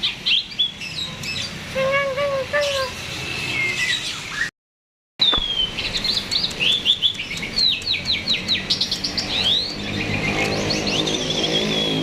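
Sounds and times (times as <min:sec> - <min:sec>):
starling whistling song: 0:05.2 - 0:12.0.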